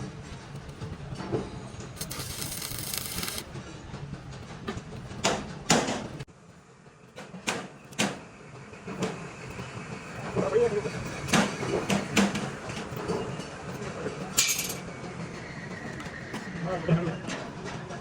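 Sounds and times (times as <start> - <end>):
steady machine hum: 1.8 - 3.5
hiss: 2.0 - 3.4.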